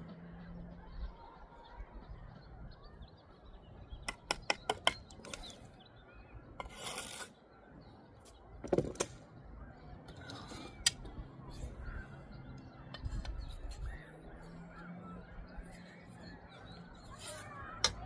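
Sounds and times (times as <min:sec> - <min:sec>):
tool scraping mortar: 0:06.6 - 0:07.4.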